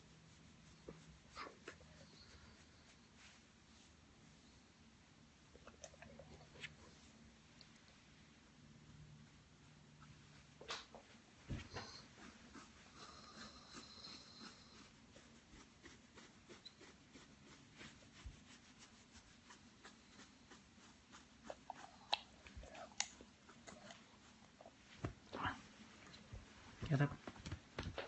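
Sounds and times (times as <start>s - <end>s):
faint clicks and taps: 26.0s - 28.0s.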